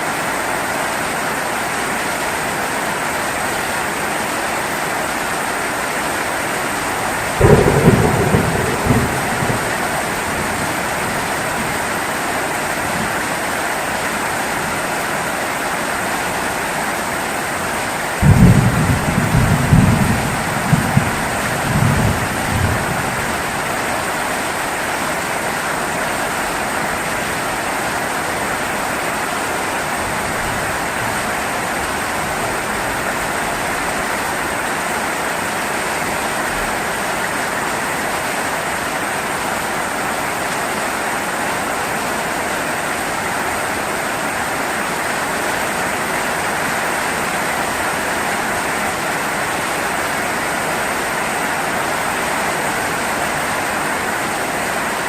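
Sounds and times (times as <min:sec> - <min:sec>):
heavy rain: 0:00.0 - 0:55.0
low thunder rumble: 0:07.2 - 0:11.9, 0:18.2 - 0:23.6.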